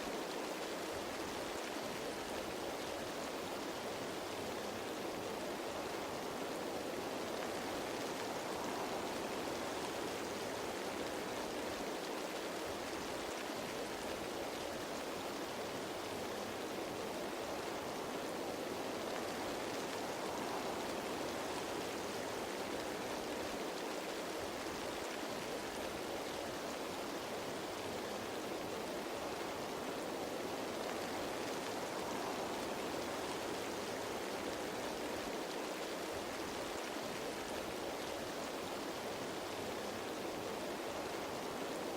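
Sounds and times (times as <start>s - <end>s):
rain falling on leaves: 0.0s - 41.9s.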